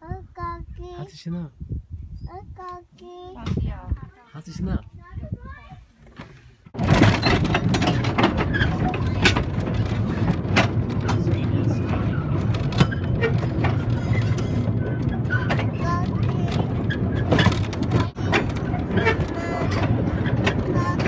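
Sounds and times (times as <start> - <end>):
clicks and rattles: 6.1 - 21.0
vehicle rumbling in motion: 6.7 - 21.0.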